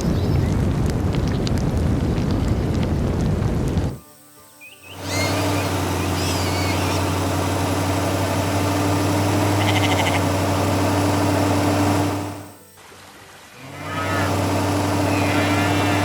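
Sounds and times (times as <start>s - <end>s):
tractor engine running: 4.9s - 12.7s, 13.7s - 16.0s.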